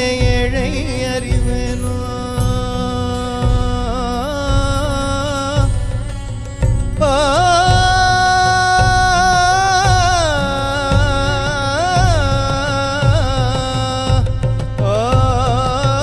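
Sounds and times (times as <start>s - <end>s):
ornamented gliding melody: 0.0s - 11.8s
steady drum beat: 0.0s - 16.0s.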